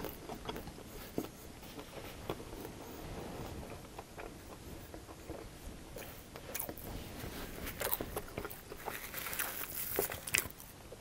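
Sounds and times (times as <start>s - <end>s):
crunchy chewing: 0.0s - 11.0s
paper napkin crinkling: 6.8s - 10.7s.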